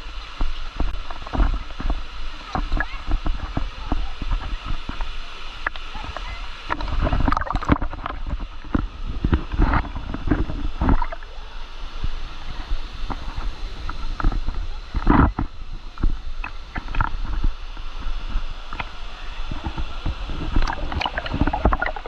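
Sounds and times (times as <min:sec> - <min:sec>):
wind buffeting microphone: 0:00.0 - 0:22.0
waterfall rushing: 0:10.6 - 0:22.0.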